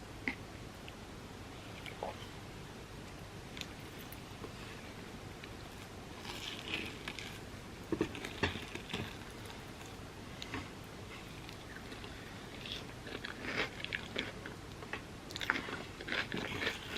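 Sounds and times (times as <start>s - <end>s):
close-miked chewing: 5.4s - 16.9s
sharp crunching sounds: 5.4s - 16.9s.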